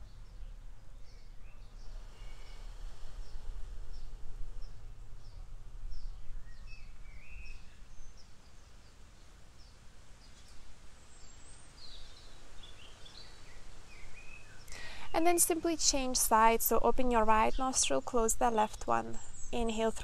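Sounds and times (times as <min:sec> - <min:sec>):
low steady rumble: 0:00.0 - 0:12.6
small birds chirping: 0:00.0 - 0:20.0.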